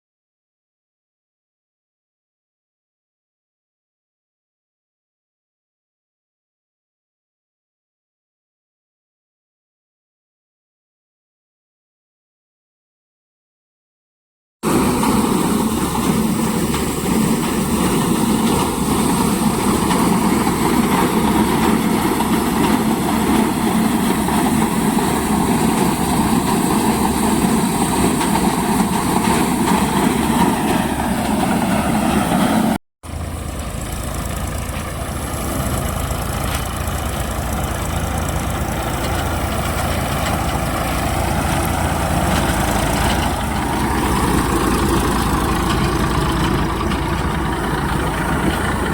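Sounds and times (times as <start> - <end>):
tractor engine running: 14.6 - 48.9.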